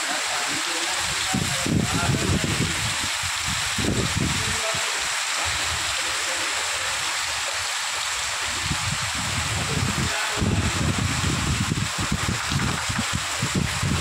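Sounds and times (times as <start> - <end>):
heavy rain on stone paving: 0.0 - 14.0
wind gusts hitting microphone: 0.9 - 6.0, 8.1 - 14.0.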